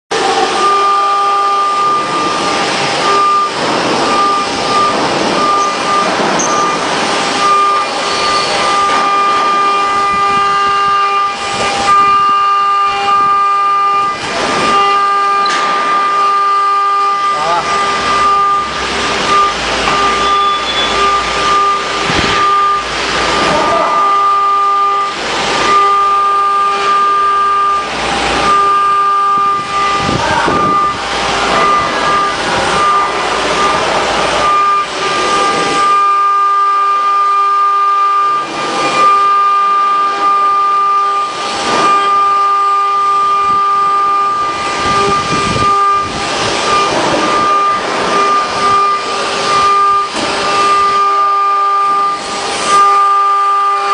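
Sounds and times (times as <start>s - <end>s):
bit cutting metal: 0.1s - 53.9s
machine spindle whine: 0.1s - 53.9s.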